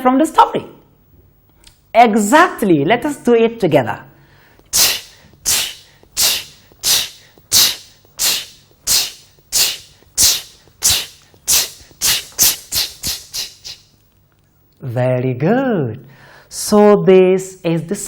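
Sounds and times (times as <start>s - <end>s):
person repeating ch sound: 4.8s - 13.8s.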